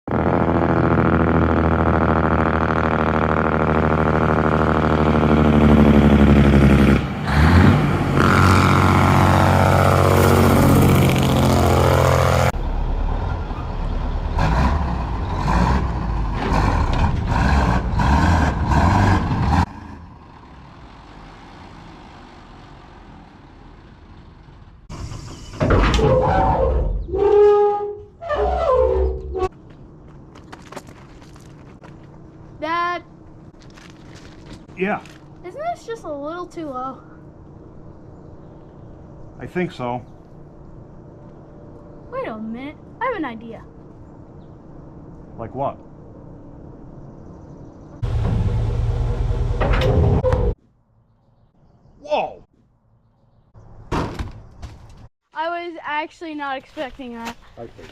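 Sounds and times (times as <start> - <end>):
heavy truck engine revving: 0.1 - 27.2, 47.9 - 50.6.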